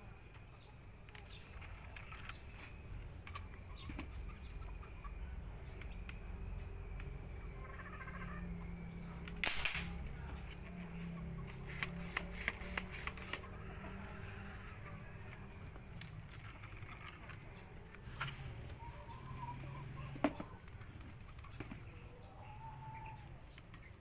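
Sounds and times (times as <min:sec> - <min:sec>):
sharp clicks: 0:09.2 - 0:10.6
pipe gun shot: 0:09.4 - 0:10.1.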